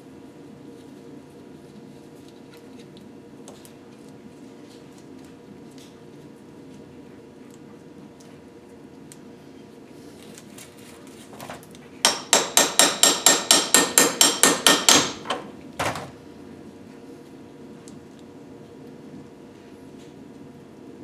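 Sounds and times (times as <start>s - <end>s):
hammer striking metal: 12.1s - 16.1s.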